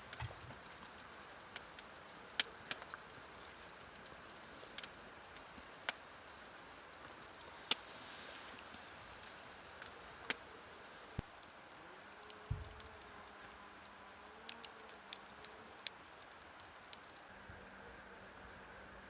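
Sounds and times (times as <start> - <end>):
sharp clicks and light taps: 12.2 - 13.1, 13.8 - 17.3
dull low thump: 12.5 - 12.8.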